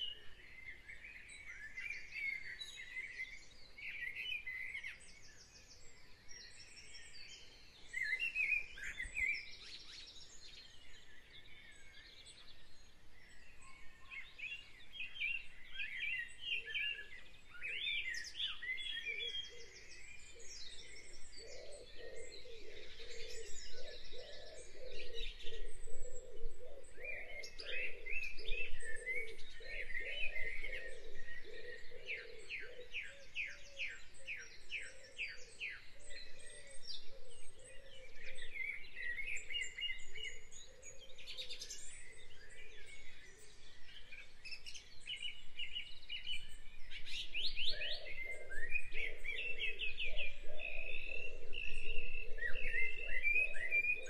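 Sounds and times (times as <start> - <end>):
birds chirping and trilling: 0.0 - 54.0.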